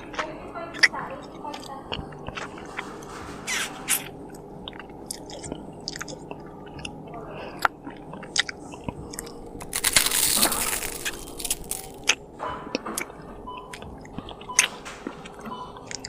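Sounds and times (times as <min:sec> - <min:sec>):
person chewing food: 0:00.0 - 0:16.0
moist mouth clicks and smacks: 0:04.7 - 0:07.0.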